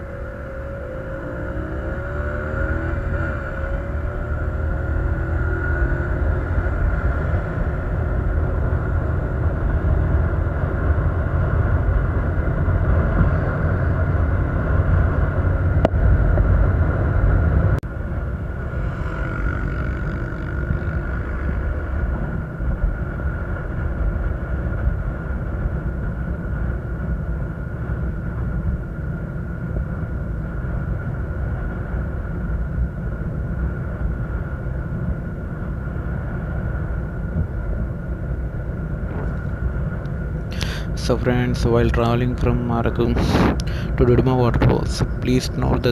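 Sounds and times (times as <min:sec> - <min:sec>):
vehicle rumble with road noise: 0:00.0 - 0:45.9
wind noise: 0:00.0 - 0:45.9
thin steady whine: 0:17.9 - 0:24.2.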